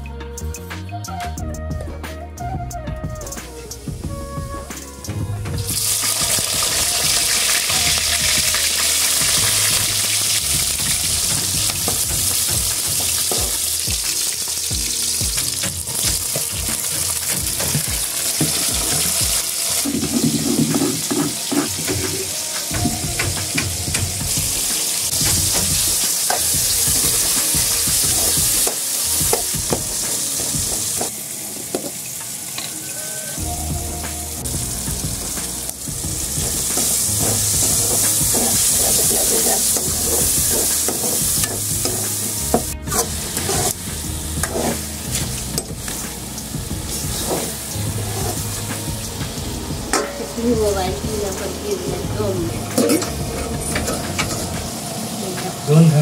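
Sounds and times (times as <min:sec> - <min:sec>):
onions sizzling in hot oil: 0:05.7 - 0:33.4, 0:34.2 - 0:56.0
spoon scraping a pan: 0:36.8 - 0:42.3, 0:44.4 - 0:44.9.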